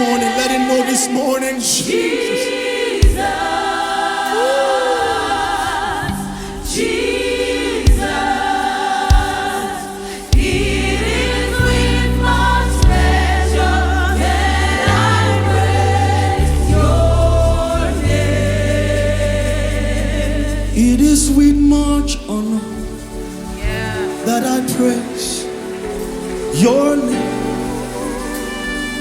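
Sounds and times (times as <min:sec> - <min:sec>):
choir singing in harmony: 0:00.0 - 0:29.0
bass line and band: 0:10.4 - 0:22.4, 0:23.6 - 0:24.1.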